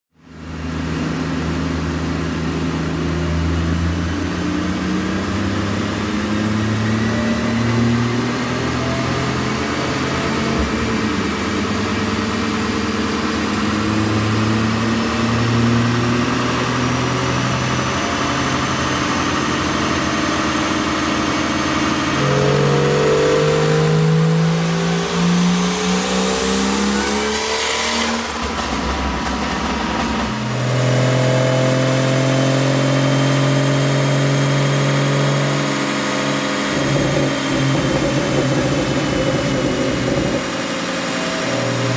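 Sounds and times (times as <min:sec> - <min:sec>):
car engine pulling under load: 0:05.4 - 0:41.9
turbo whine: 0:21.6 - 0:31.7, 0:35.6 - 0:41.9.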